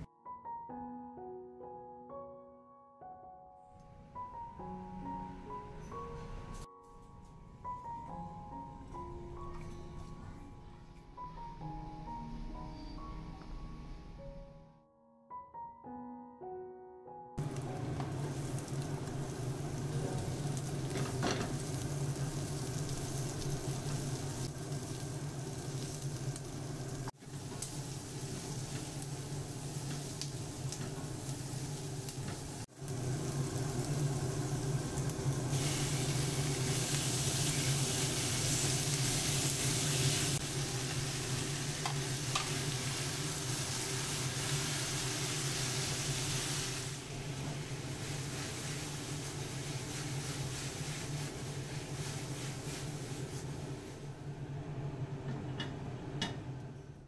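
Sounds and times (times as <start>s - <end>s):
food sizzling in oil: 17.4s - 54.1s.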